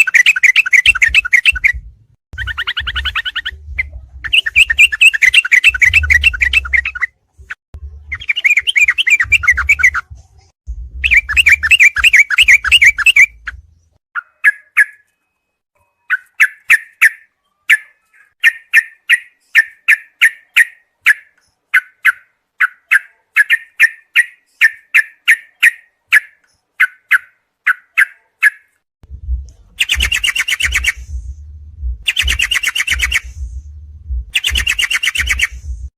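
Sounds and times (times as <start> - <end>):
bird bubbling trilled song: 4.2 - 7.1, 8.1 - 10.0, 11.0 - 13.5, 29.8 - 31.0, 32.0 - 33.3, 34.4 - 35.6
low rumble: 7.4 - 8.2, 9.9 - 11.7, 29.0 - 30.3, 30.9 - 32.4, 33.2 - 34.4, 35.5 - 35.9
short sharp bird chirps: 14.2 - 28.8, 29.8 - 31.2, 32.1 - 33.4, 34.4 - 35.7.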